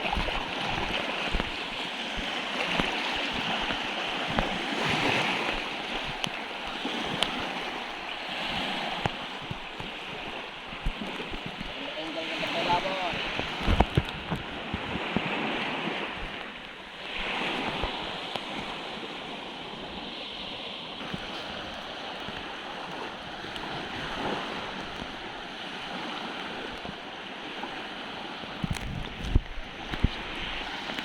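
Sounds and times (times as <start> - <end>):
sea surf washing in: 0.0 - 31.0
wind buffeting microphone: 0.0 - 31.0.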